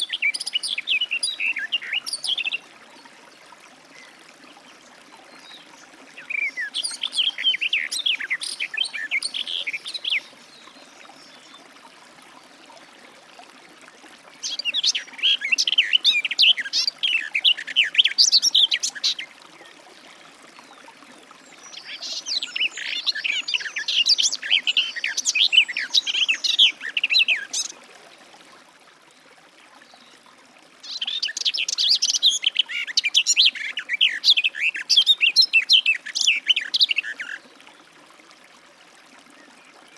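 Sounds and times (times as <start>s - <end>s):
bird warbling song: 5.4s - 11.6s, 14.4s - 19.3s, 21.6s - 27.8s, 30.8s - 37.4s.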